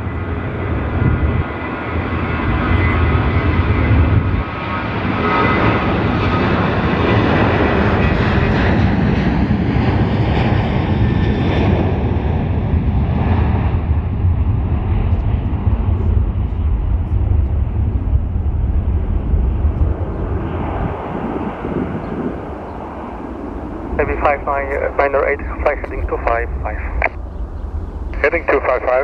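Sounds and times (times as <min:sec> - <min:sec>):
airliner engine rumble: 0:00.0 - 0:29.0.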